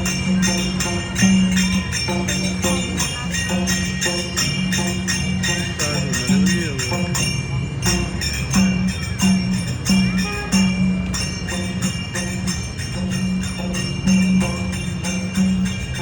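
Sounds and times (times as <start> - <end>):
ringing metal percussion: 0.0 - 16.0.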